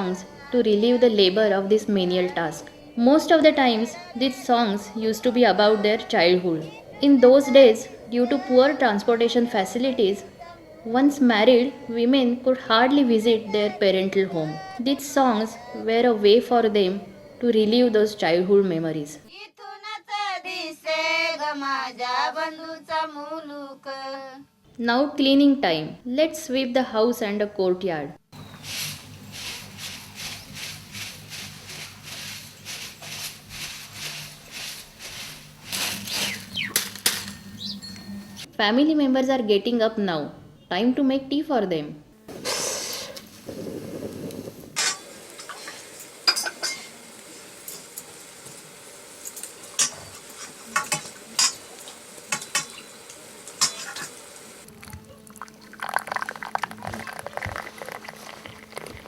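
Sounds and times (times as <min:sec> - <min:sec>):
broom sweeping a floor: 0:28.4 - 0:38.5, 0:42.3 - 0:54.4
crackling hiss: 0:28.4 - 0:38.5, 0:42.3 - 0:59.0
low hum: 0:28.4 - 0:38.5
metal utensils clinking: 0:28.4 - 0:38.5, 0:44.8 - 0:48.1, 0:49.2 - 0:54.4.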